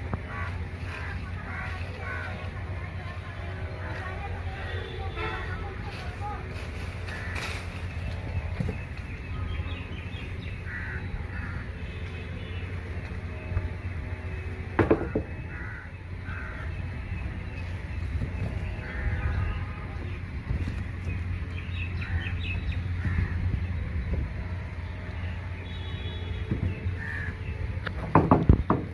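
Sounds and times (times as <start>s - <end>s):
crows cawing: 0.2s - 2.8s, 7.0s - 7.9s, 10.6s - 12.0s, 14.9s - 16.9s, 18.8s - 19.6s, 22.0s - 23.5s, 27.0s - 27.5s
low rumble: 5.4s - 27.9s.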